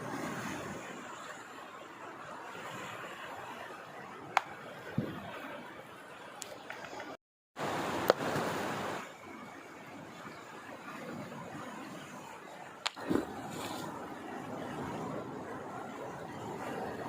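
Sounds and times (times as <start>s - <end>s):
river water rushing: 7.6s - 17.0s.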